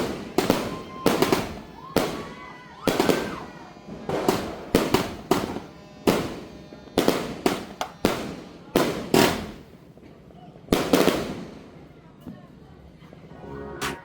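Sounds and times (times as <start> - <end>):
firework whistling: 0.0 - 9.8
fireworks firing sharp reports: 0.0 - 14.0.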